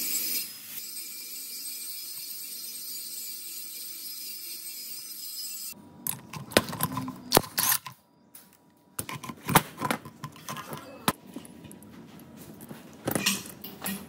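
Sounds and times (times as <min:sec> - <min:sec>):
metal tools clicking and knocking: 0:13.0 - 0:14.0.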